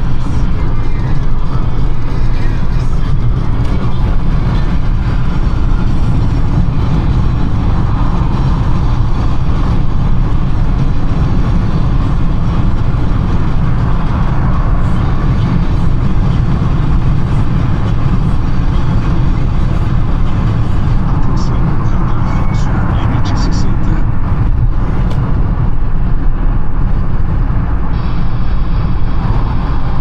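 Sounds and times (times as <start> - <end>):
car engine running: 0.0 - 30.0
tyre and road noise: 0.0 - 30.0.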